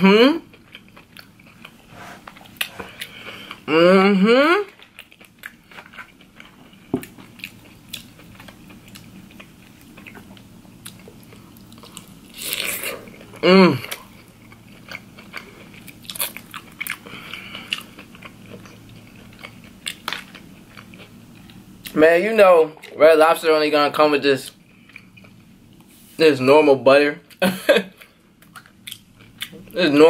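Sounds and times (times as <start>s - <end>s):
person humming mm: 0.0s - 0.4s, 3.7s - 4.7s, 13.4s - 14.0s
person chewing and crunching: 0.4s - 3.9s, 4.6s - 22.0s, 24.5s - 25.5s, 28.0s - 29.9s.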